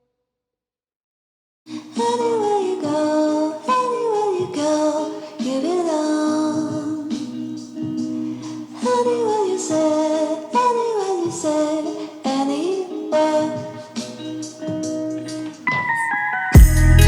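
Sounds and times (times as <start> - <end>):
woman singing over held notes: 1.7 - 14.7.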